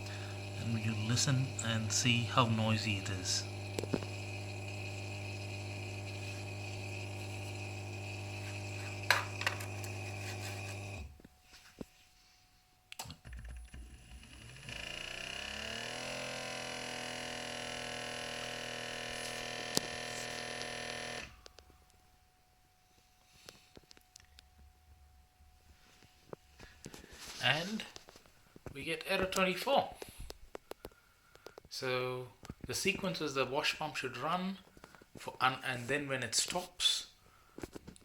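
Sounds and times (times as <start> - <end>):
dishwasher drain pump humming: 0.0 - 11.1, 13.4 - 21.4
wash pump motor whine: 0.0 - 11.2, 13.2 - 21.4.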